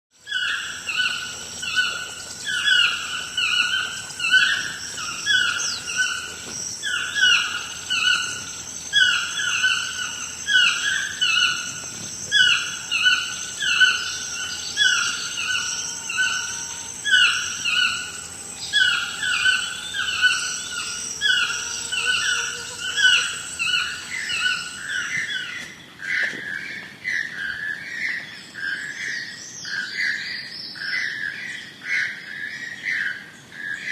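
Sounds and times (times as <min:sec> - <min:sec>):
high insect drone: 0:00.2 - 0:26.6
toucan yelping call: 0:00.3 - 0:25.6.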